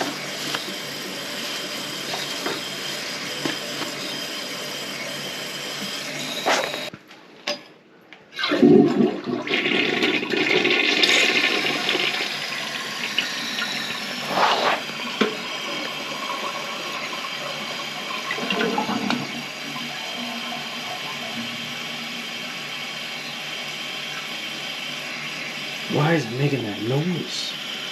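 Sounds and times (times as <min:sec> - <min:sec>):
toilet flushing: 0:00.0 - 0:06.9, 0:08.4 - 0:27.9
toilet tank refilling: 0:08.4 - 0:27.9.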